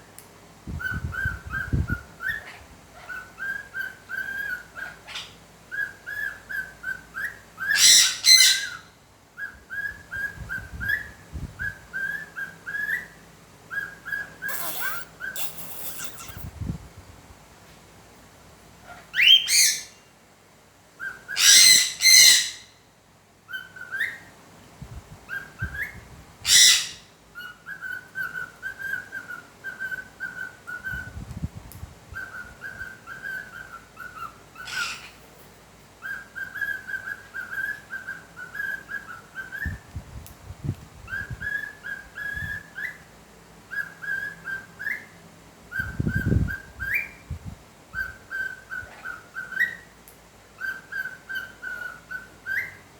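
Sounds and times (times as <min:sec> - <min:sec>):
parrot screeching: 0:14.5 - 0:16.5
parrot whistling a tune: 0:14.5 - 0:16.5.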